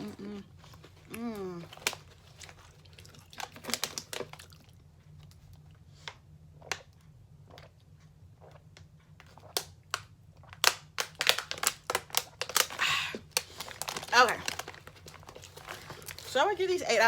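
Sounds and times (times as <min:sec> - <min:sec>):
quiet chewing: 0:00.0 - 0:09.7
potato chips crunching: 0:01.0 - 0:04.8, 0:10.5 - 0:16.3.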